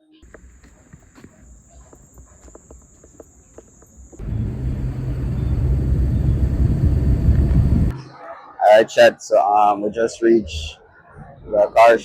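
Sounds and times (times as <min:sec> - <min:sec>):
car engine and road rumble: 0:00.2 - 0:07.9.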